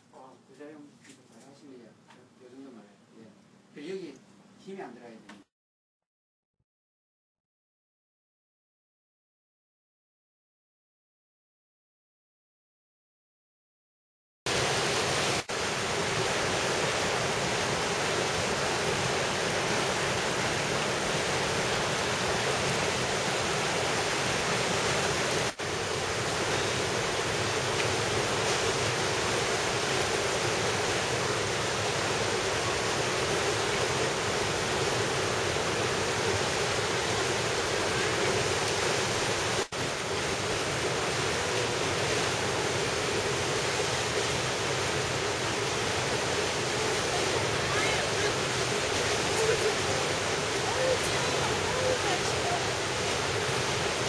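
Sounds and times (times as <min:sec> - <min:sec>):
stream water rushing: 0:14.5 - 0:54.0.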